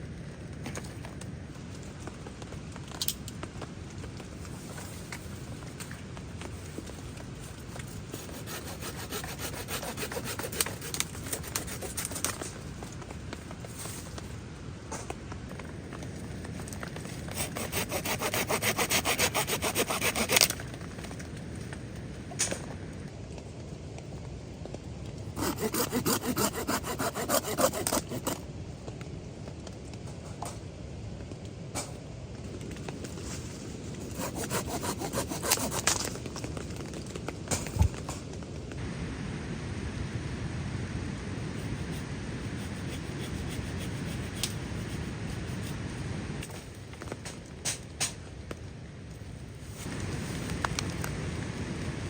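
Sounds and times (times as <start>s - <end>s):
saw cutting wooden branch: 7.7s - 12.4s, 17.3s - 20.6s, 25.4s - 28.4s, 34.0s - 36.1s, 41.6s - 45.7s.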